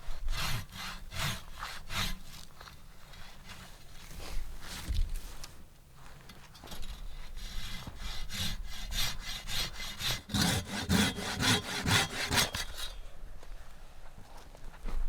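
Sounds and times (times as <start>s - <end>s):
hand saw cutting wood: 0.2s - 2.5s, 6.6s - 13.0s.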